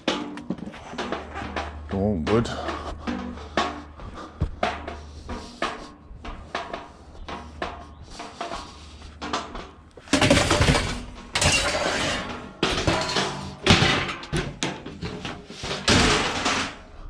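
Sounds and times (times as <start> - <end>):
wood and metal knocks and clatters: 0.0 - 17.0
loud scraping and rustling: 6.4 - 16.9.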